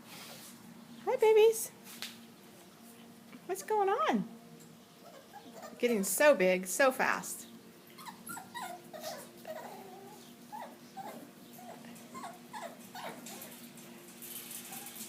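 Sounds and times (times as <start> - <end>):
puppies whimpering: 5.0 - 6.0, 7.9 - 13.5.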